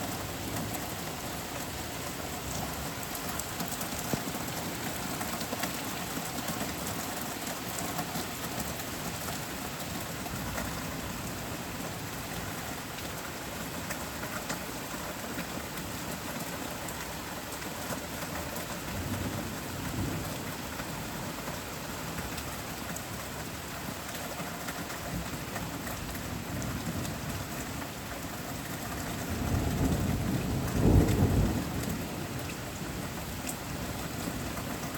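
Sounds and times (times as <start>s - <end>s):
steady rain hiss: 0.0s - 34.9s
thunder rumbling: 29.4s - 32.4s.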